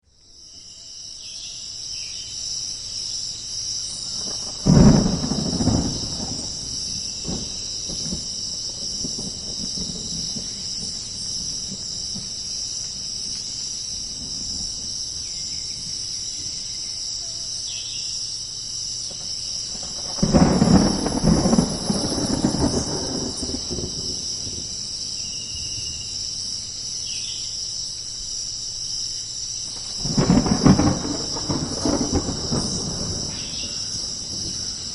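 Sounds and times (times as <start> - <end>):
insects trilling: 0.1 - 34.9
rain: 1.7 - 34.9
thunder crack and rumble: 4.0 - 13.4, 14.0 - 16.5, 19.2 - 25.2, 29.7 - 34.9.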